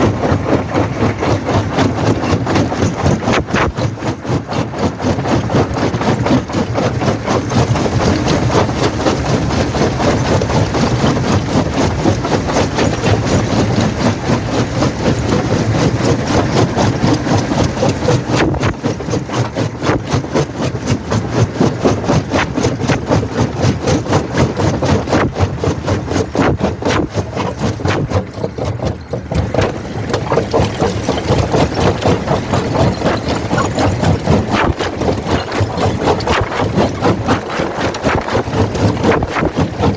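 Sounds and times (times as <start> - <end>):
rock crusher machine drone: 0.0 - 39.9
stone cracking and rattling: 27.6 - 39.9.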